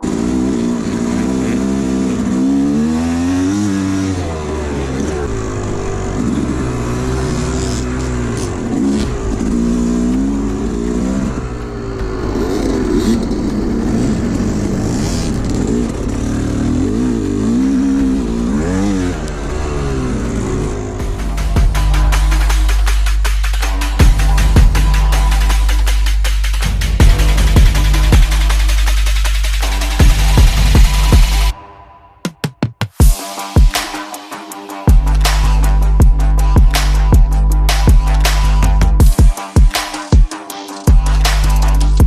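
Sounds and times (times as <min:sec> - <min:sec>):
dirt bike engine revving: 0:00.0 - 0:31.6.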